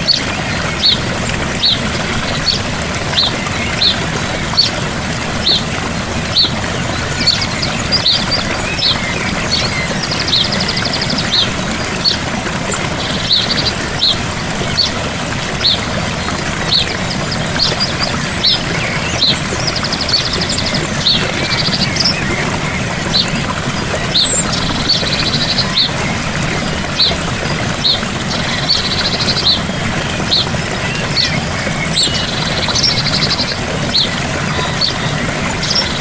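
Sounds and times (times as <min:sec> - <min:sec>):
waterfall rushing: 0:00.0 - 0:36.0
bird chirping: 0:12.9 - 0:14.9.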